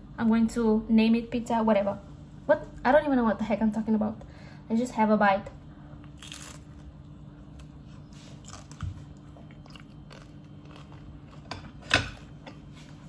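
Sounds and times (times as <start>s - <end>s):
quiet chewing: 6.0s - 11.8s
pizza crunching: 6.0s - 11.9s.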